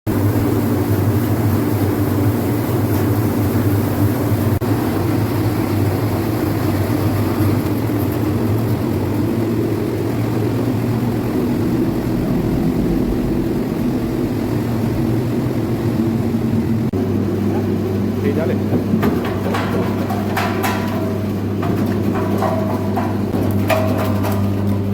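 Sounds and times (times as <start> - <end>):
machinery humming: 0.1 - 24.9
higher steady tone: 10.7 - 16.9.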